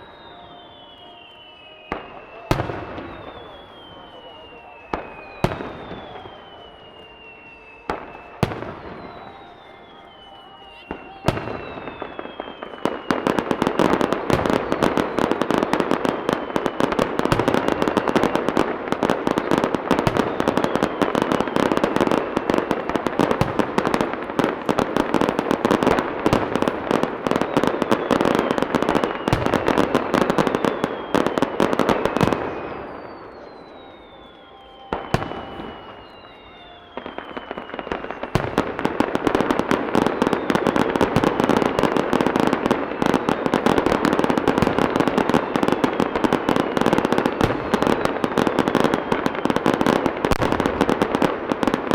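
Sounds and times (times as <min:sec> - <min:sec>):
falling fireworks whistles: 0:00.0 - 0:51.9
fireworks crackling and bursting: 0:00.0 - 0:51.9.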